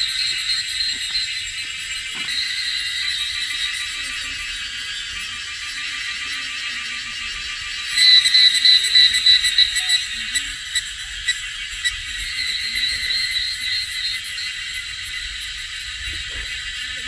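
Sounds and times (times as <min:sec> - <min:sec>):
shrill insect chorus: 0:00.0 - 0:17.0.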